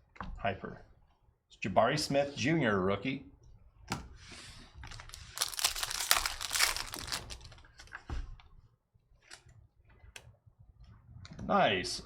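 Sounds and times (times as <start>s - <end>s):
wrapper tearing and crinkling: 4.9s - 7.9s.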